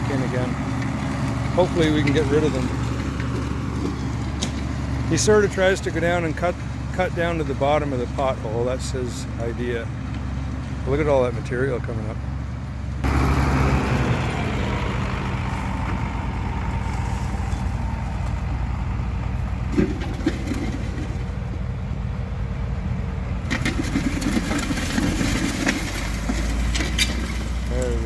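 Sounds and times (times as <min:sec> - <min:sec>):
tractor engine running: 0:00.0 - 0:28.0
scraping and clatter: 0:00.1 - 0:05.6, 0:19.5 - 0:21.6, 0:23.4 - 0:28.0.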